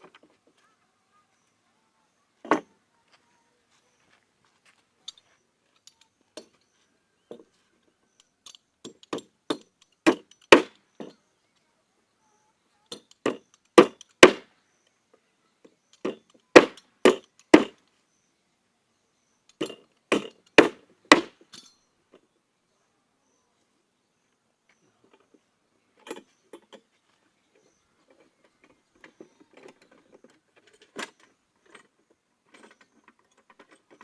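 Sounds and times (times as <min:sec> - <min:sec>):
timber boards knocked together: 0:09.2 - 0:10.7, 0:13.3 - 0:14.4, 0:16.0 - 0:17.8, 0:19.6 - 0:21.4.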